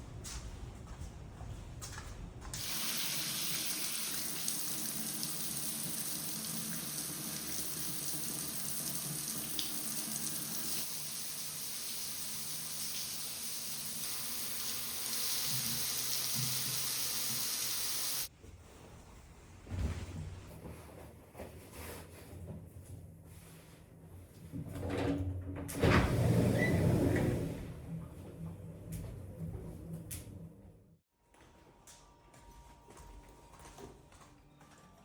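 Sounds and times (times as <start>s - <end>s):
tap water running into sink: 2.6s - 18.3s.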